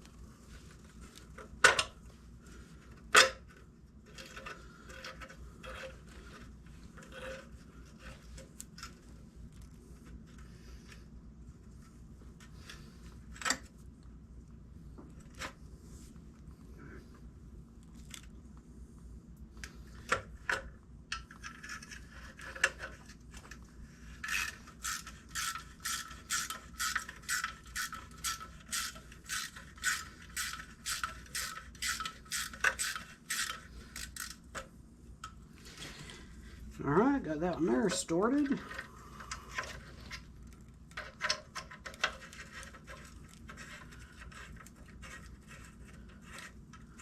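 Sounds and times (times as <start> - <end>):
ratchet wrench clicking: 24.3 - 34.4.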